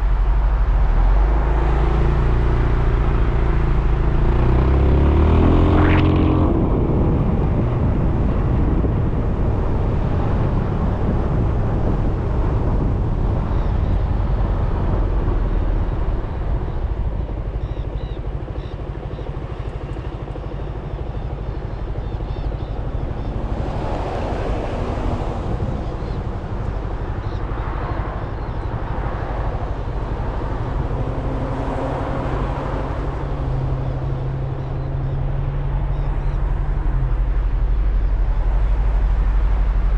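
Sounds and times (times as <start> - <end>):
road and wind noise: 0.0 - 39.9.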